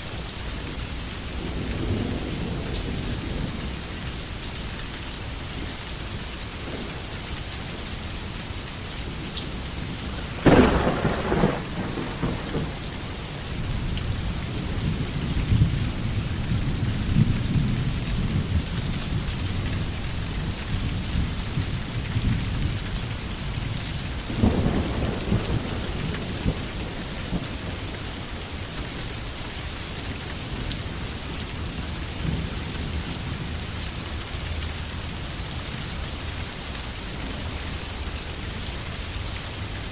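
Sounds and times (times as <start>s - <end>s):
steady rain: 0.0s - 39.9s
thunder rumbling: 5.6s - 29.2s.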